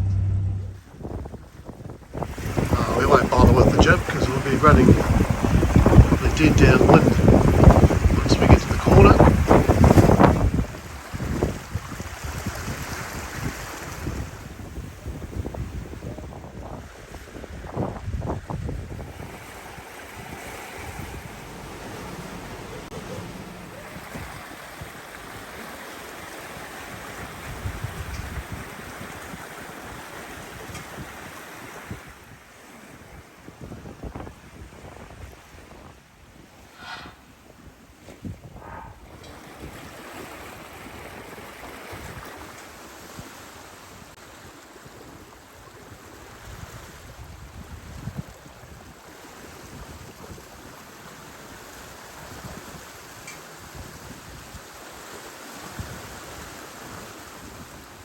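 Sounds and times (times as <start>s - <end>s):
wind buffeting microphone: 0.0s - 32.3s, 33.1s - 43.3s, 45.0s - 54.7s
water rushing and splashing: 0.0s - 33.0s.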